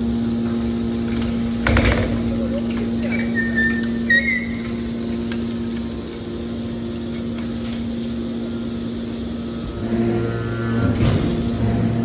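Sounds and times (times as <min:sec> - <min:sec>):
hydraulic power unit humming: 0:00.0 - 0:12.0
short high squeal: 0:03.2 - 0:04.8.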